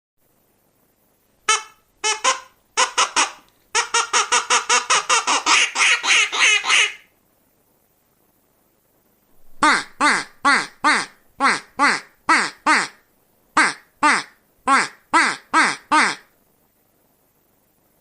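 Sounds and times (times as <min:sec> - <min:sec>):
duck quacking: 0:01.5 - 0:07.1, 0:09.6 - 0:13.0, 0:13.6 - 0:16.3.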